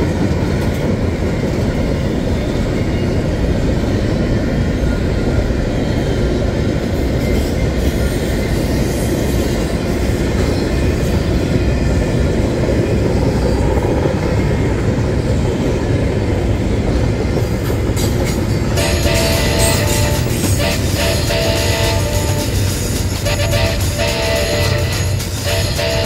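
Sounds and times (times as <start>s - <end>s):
train wheels on rail joints: 0.0s - 26.0s.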